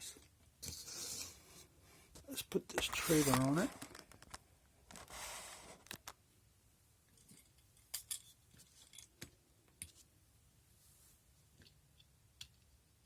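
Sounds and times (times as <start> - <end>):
brief rustle: 2.7 - 6.1.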